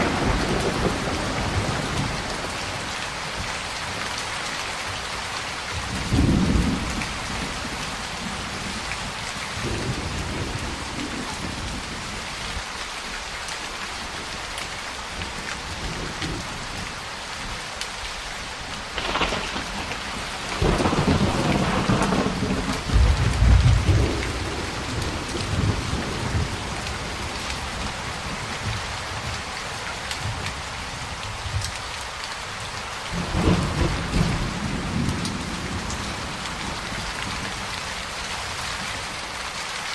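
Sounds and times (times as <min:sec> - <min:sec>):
thunder rumbling and cracking: 0:00.0 - 0:03.6, 0:05.7 - 0:12.3, 0:18.8 - 0:29.4, 0:33.1 - 0:37.8
heavy rain: 0:00.0 - 0:39.9.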